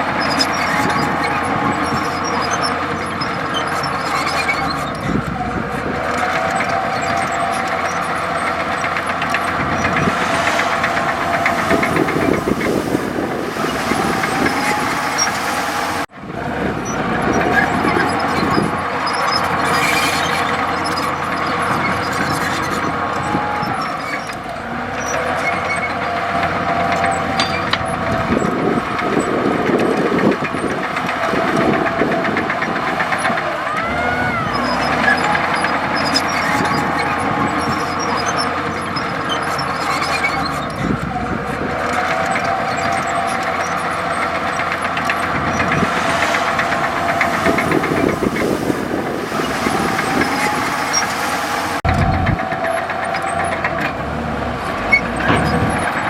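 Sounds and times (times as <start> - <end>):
bulldozer clattering: 0.0 - 56.0
bulldozer diesel engine running: 0.0 - 56.0
rising and falling whine: 7.8 - 16.1, 44.6 - 52.4.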